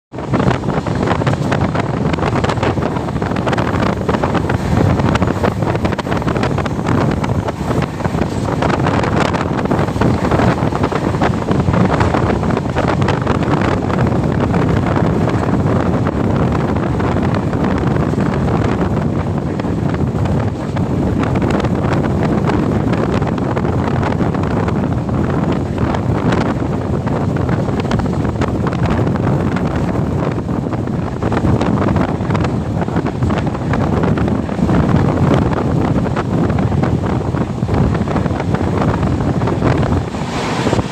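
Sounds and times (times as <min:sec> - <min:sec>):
train rushing: 0:00.1 - 0:40.9
wind buffeting microphone: 0:00.1 - 0:40.9.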